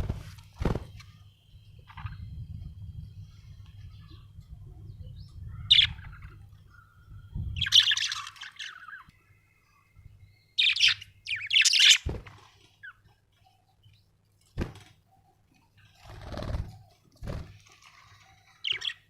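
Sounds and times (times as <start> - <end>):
budgerigar chirping: 10.6 - 12.0.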